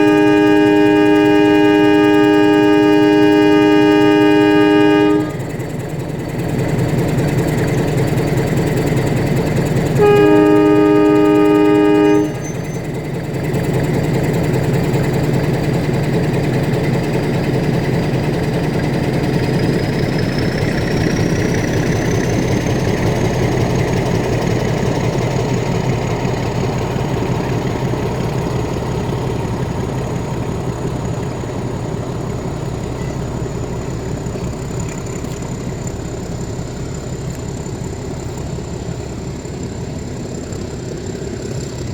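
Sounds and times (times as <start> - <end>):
train horn blast: 0.0 - 5.6, 9.9 - 12.8
train running: 0.0 - 41.9.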